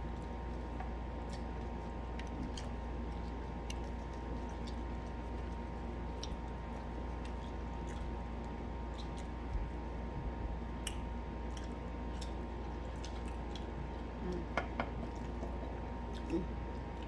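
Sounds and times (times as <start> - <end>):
person chewing food: 0.0 - 17.0
steady low hum: 0.0 - 17.0
wet mouth clicks: 10.8 - 12.4.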